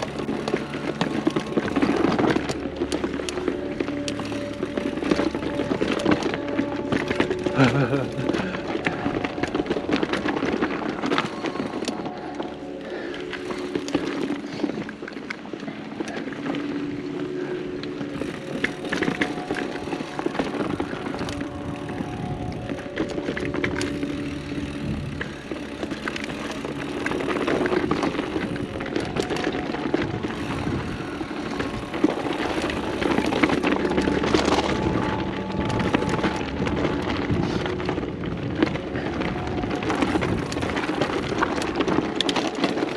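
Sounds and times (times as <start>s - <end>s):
bike rattling over bumps: 0.0s - 42.9s
bike tyres rolling over dirt: 0.0s - 42.9s.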